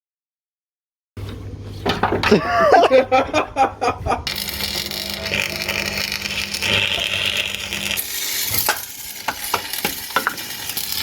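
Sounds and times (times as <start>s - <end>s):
mechanical hiss with low hum: 2.9s - 11.0s.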